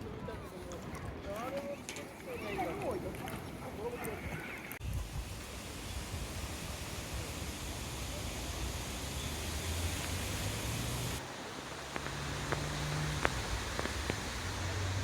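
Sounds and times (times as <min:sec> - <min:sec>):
rushing outdoor background: 0:00.0 - 0:15.0
footsteps on a path: 0:11.9 - 0:14.6.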